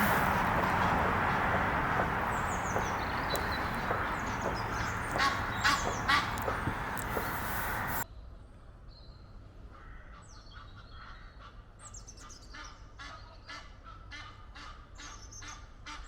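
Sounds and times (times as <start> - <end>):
geese honking: 0.0 - 8.0
small birds chirping: 0.0 - 8.0
steady rushing noise: 0.0 - 8.0.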